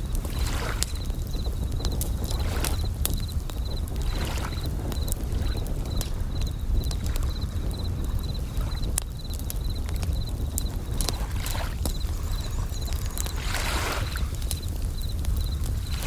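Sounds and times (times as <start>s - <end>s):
campfire crackling: 0.0s - 16.0s
crickets chirping: 0.0s - 16.0s
waves washing in: 0.2s - 3.3s, 10.4s - 16.0s.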